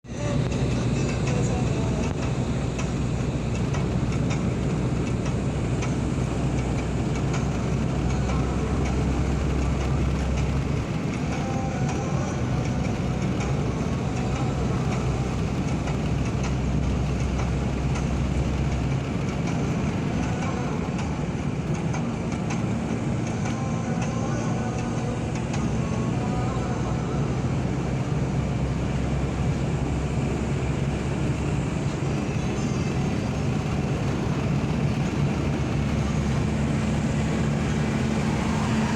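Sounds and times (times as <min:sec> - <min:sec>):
moving vehicle running noise: 0:00.0 - 0:38.9.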